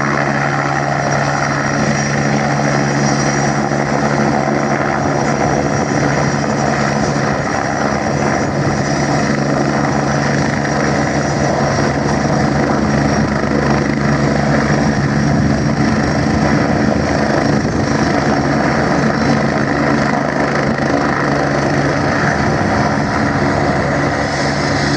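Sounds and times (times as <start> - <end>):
helicopter drone: 0.0 - 24.9.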